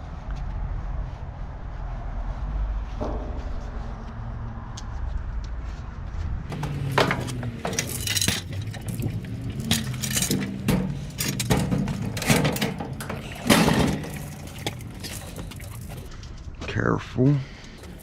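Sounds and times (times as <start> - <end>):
scrap metal clanking: 6.5 - 16.1.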